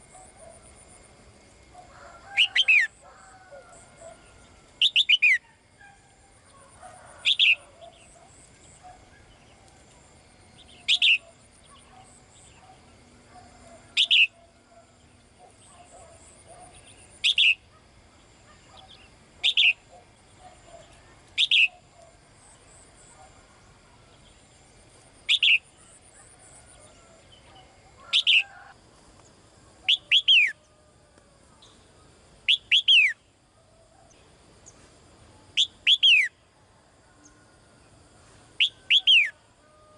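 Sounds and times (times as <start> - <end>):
songbird calling: 1.8 - 3.0, 3.6 - 23.2, 25.2 - 30.7, 31.6 - 34.9, 35.6 - 36.4, 38.6 - 39.7.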